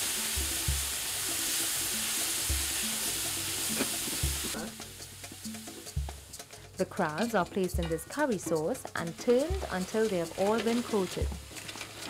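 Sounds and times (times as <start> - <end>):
sauce sizzling in hot oil: 0.0 - 12.0
wooden spoon stirring pot: 3.8 - 12.0.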